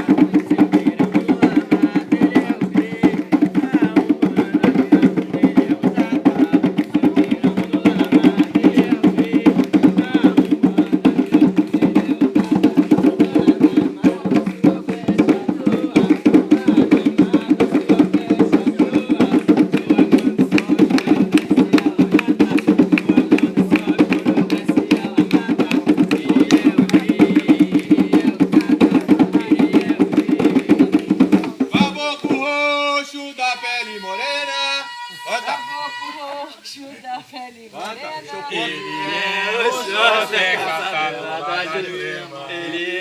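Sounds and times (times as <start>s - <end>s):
hand drums beaten fast: 0.0s - 32.9s.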